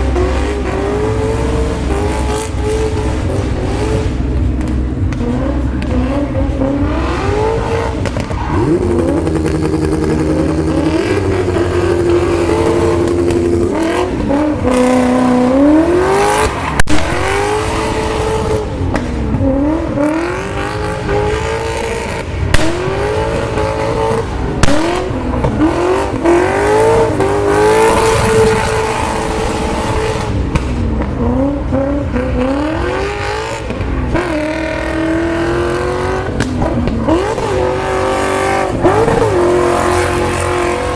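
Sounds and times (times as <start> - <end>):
car engine revving: 0.0 - 40.9
sharp cracks: 22.5 - 23.9, 24.6 - 26.1.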